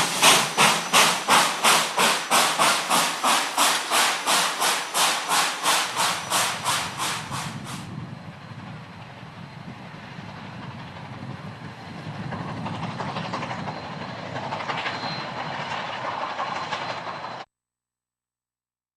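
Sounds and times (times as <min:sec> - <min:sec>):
wheels clicking over rail joints: 0:00.0 - 0:07.4
steam locomotive exhaust chuffs: 0:00.0 - 0:09.0
train rolling rumble: 0:00.0 - 0:17.5.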